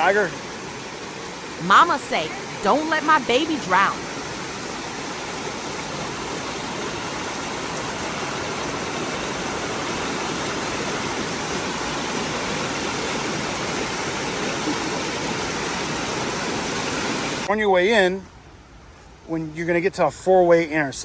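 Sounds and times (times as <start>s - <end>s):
creek water rushing: 0.0s - 17.5s.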